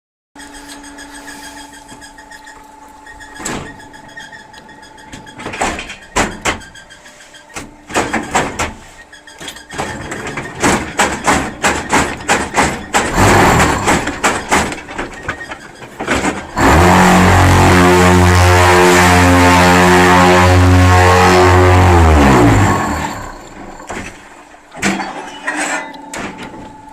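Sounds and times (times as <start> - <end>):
metallic knocks and clanks: 0.4 - 17.7, 22.4 - 26.9
machine humming: 0.4 - 24.8
loud steady drone: 12.6 - 14.7, 16.3 - 23.8.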